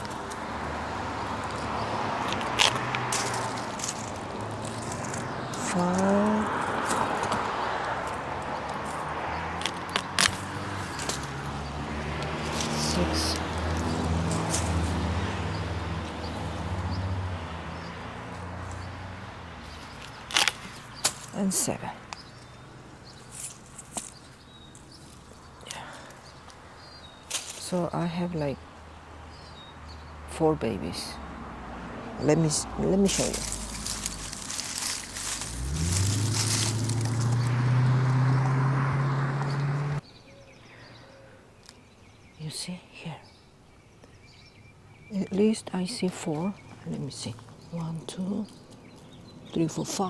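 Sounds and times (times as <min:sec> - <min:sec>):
low engine hum: 0:00.0 - 0:26.4, 0:29.9 - 0:40.0.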